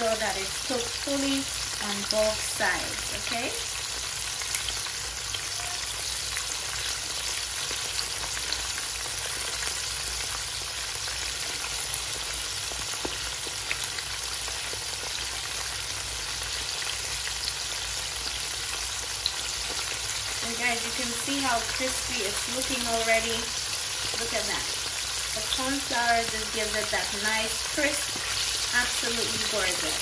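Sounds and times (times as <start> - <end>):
chicken frying in hot oil: 0.0 - 30.0
oil popping and crackling: 3.8 - 20.4, 23.3 - 30.0.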